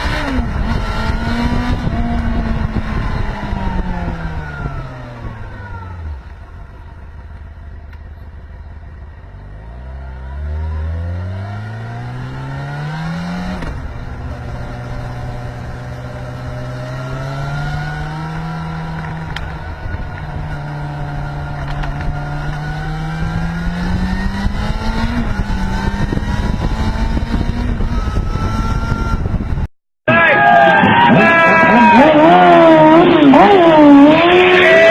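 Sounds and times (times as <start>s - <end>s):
motorcycle engine accelerating: 0.0s - 29.7s, 31.0s - 34.9s.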